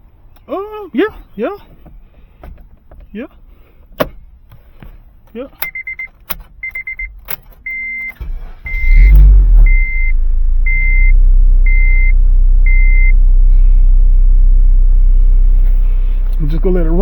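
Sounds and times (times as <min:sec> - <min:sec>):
car warning chime beeping: 0:05.6 - 0:13.2
car engine cranking and starting: 0:05.7 - 0:17.0
car engine idling: 0:08.2 - 0:17.0.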